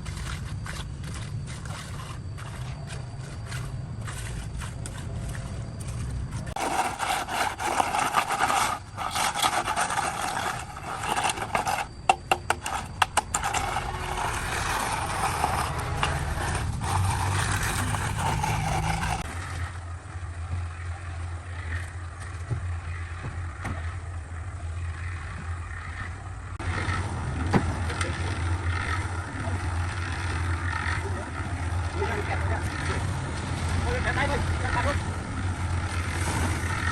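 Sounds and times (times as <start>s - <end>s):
scraping on a hard surface: 0.0s - 19.6s
low motor hum: 0.0s - 36.9s.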